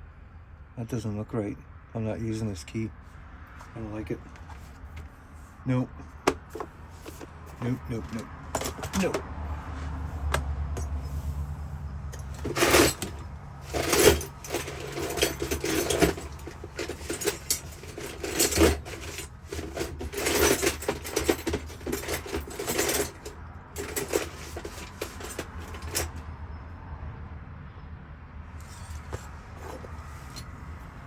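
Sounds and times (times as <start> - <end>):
keys and metal parts clinking: 6.1 - 9.3, 10.1 - 11.5, 12.1 - 26.2, 28.6 - 30.5.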